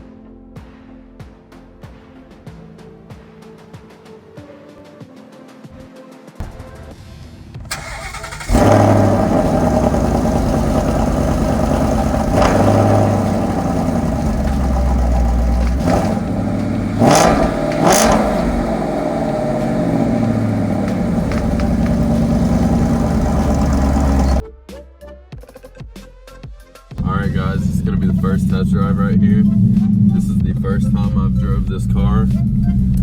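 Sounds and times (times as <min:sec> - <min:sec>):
car engine revving: 0:07.7 - 0:24.4, 0:27.0 - 0:33.0.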